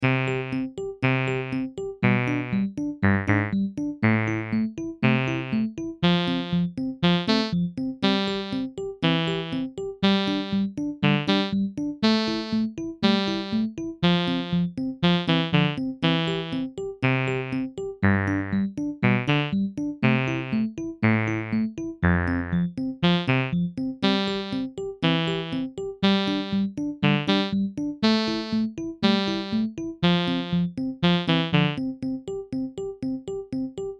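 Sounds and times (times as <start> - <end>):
synthesizer electric piano chords: 17.4 - 19.6, 28.3 - 31.8.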